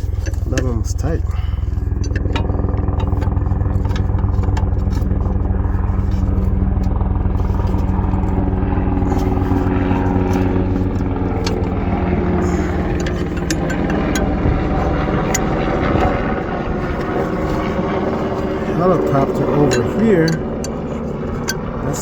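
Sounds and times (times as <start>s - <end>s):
helicopter engine hum: 0.0s - 22.0s
helicopter rotor beat: 0.0s - 22.0s.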